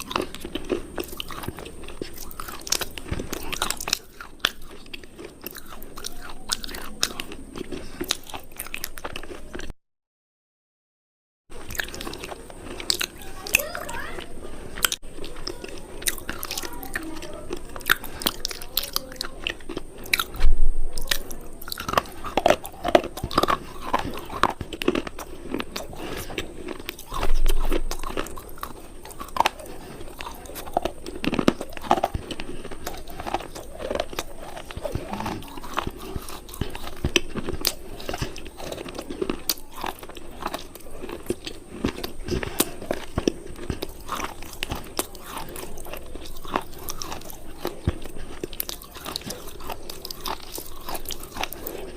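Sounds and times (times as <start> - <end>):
crunching hard cubes: 0.0 - 9.7, 11.6 - 51.9.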